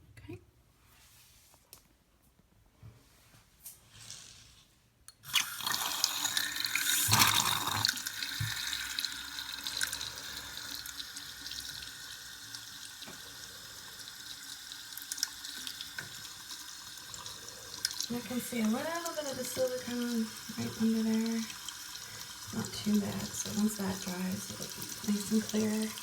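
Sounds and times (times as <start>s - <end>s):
tap water running into basin: 5.2s - 26.0s.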